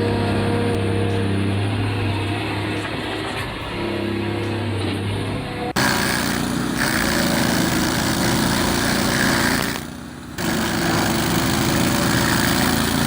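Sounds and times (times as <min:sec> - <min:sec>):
stump grinder grinding: 0:05.8 - 0:13.0.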